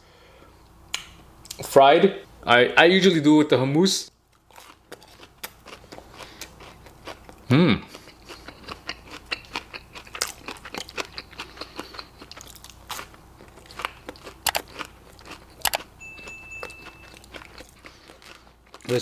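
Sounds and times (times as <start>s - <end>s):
crunchy food bites and chewing: 4.3s - 16.0s, 16.6s - 19.0s.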